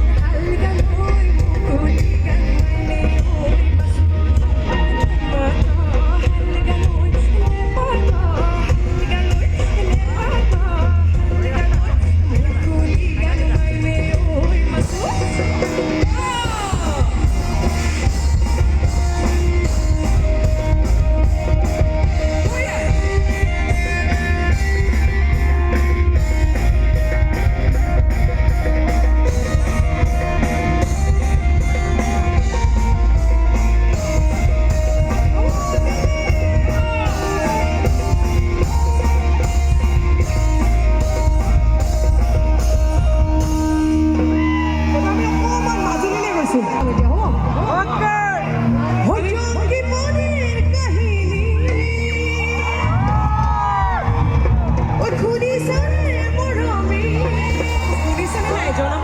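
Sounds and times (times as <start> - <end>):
pounding drum kit: 0.0 - 50.0, 50.6 - 59.0
rock band playing live: 0.0 - 59.0.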